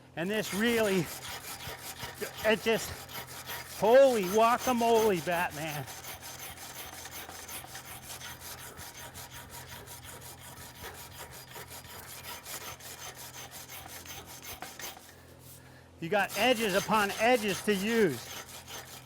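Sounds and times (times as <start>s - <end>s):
sanding block rasping on steel: 0.4s - 15.6s, 16.2s - 19.0s.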